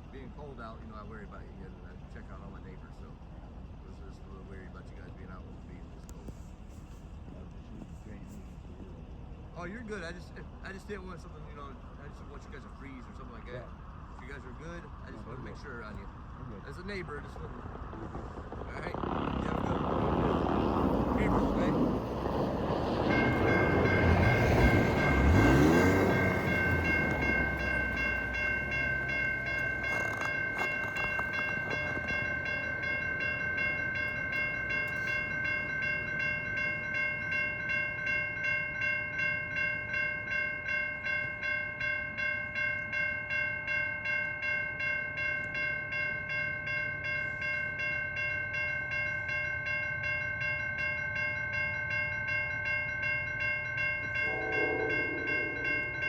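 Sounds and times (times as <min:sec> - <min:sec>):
crossing warning bell ringing: 0:09.0 - 0:56.0
road vehicle passing: 0:12.7 - 0:37.0, 0:54.0 - 0:56.0
low rumble: 0:15.9 - 0:35.4, 0:54.2 - 0:56.0.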